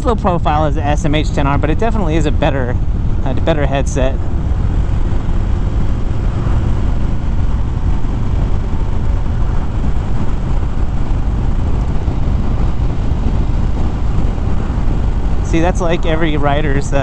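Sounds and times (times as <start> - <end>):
motorcycle engine droning: 0.0 - 17.0
wind rushing over microphone: 0.0 - 17.0.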